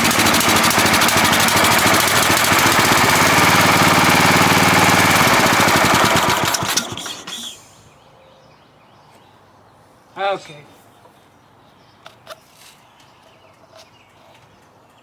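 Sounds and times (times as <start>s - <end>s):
riding mower engine running: 0.0s - 7.7s.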